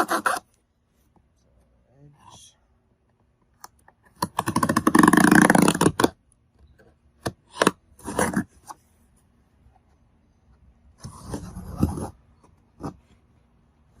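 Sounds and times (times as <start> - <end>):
cardboard being cut: 0.0 - 0.5, 4.2 - 6.2, 7.4 - 8.7, 11.0 - 12.2.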